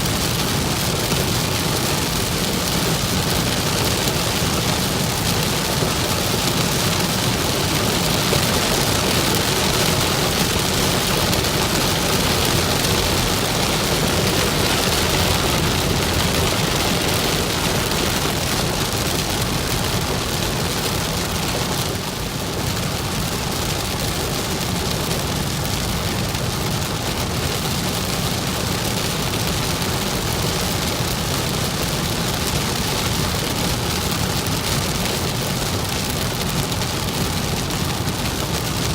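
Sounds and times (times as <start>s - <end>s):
car road noise: 0.0s - 28.2s
heavy rain on a car: 0.0s - 38.9s.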